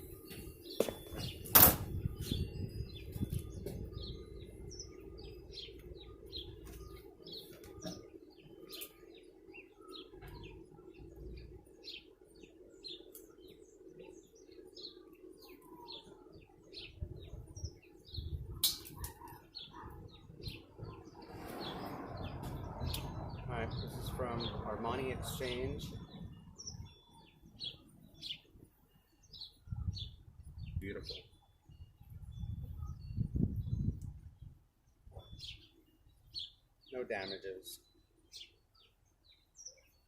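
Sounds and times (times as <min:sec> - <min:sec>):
steady low hum: 0:00.0 - 0:19.0
small birds chirping: 0:00.0 - 0:40.0.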